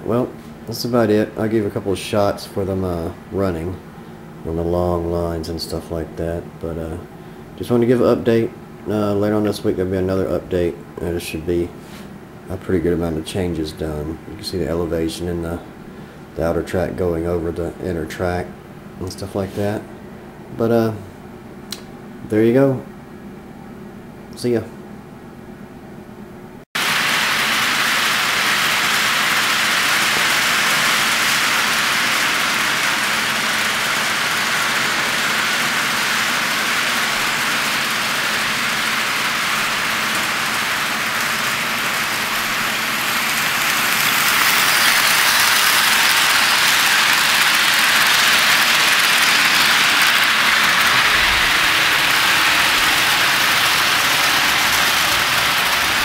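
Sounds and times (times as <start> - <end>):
model train rolling on track: 26.8 - 56.0.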